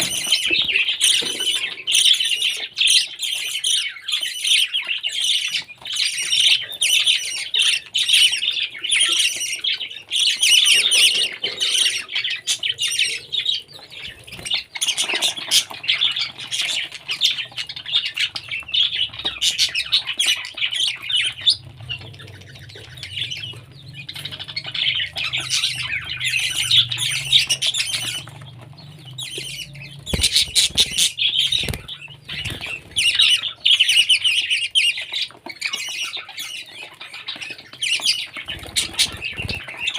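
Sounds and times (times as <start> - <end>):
parrot squawking and chattering: 14.5 - 37.2.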